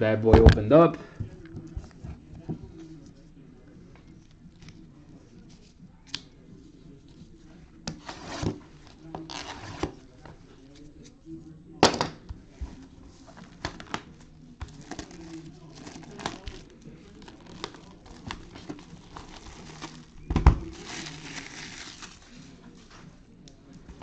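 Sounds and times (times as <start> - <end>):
plastic wrap crinkling: 13.8 - 22.4.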